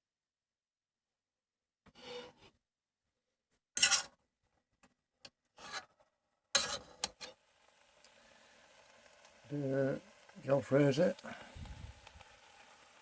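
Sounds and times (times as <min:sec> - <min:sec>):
utensil scraping a pan: 0:01.9 - 0:02.5, 0:03.8 - 0:04.2, 0:05.6 - 0:07.4.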